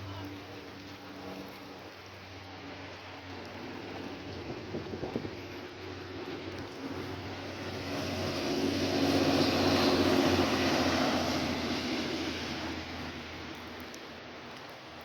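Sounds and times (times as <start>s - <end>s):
rain pattering: 0.0s - 15.0s
vehicle passing by: 2.7s - 14.0s.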